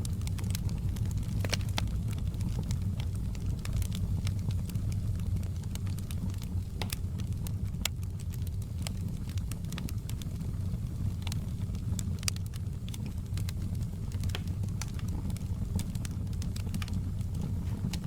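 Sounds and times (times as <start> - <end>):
fire crackling and popping: 0.0 - 18.0
fire flames rumbling: 0.0 - 18.0.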